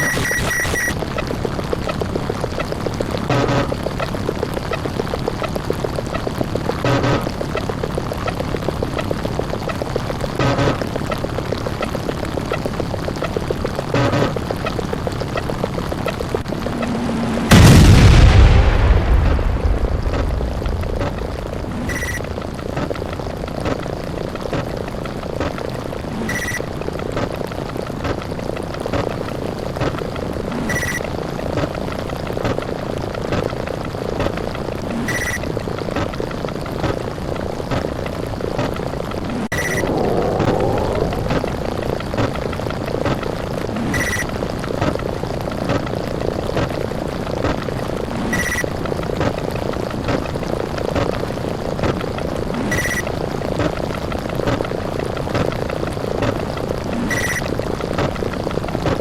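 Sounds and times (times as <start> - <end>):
short high beep: 0.0 - 1.0, 21.9 - 22.2, 39.5 - 40.0
rumble of explosions: 15.5 - 25.4, 37.8 - 45.2.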